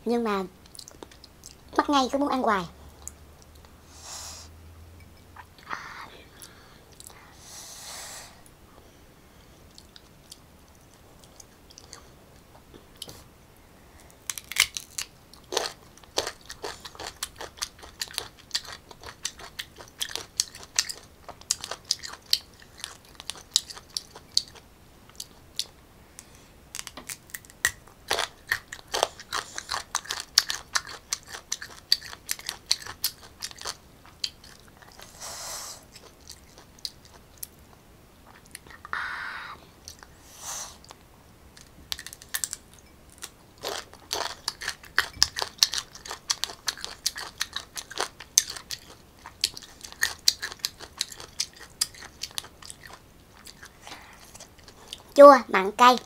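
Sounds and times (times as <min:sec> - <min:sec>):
short hissing sounds: 0:03.8 - 0:04.6, 0:07.3 - 0:08.4, 0:35.0 - 0:35.9, 0:40.2 - 0:40.9
crunching raw mango: 0:14.2 - 0:24.5.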